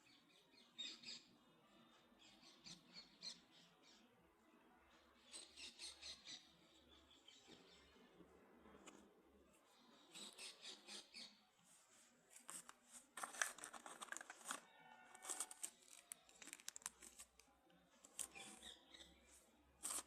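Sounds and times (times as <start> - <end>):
packaging rustling and crinkling: 12.3 - 18.6.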